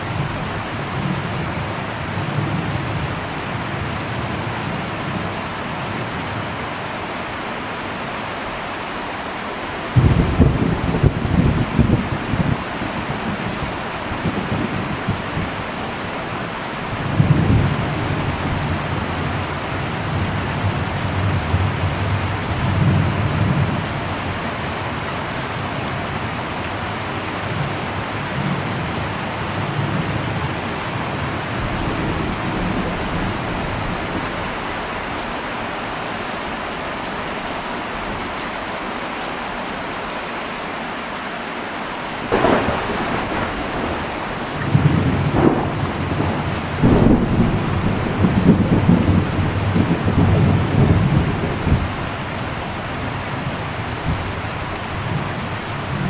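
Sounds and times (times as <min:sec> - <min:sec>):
heavy rain on metal roof: 0:00.0 - 0:56.0
sharp thunderclap: 0:10.0 - 0:15.7, 0:42.3 - 0:52.3
thunder rumbling: 0:10.0 - 0:24.4, 0:27.6 - 0:35.3, 0:42.2 - 0:56.0.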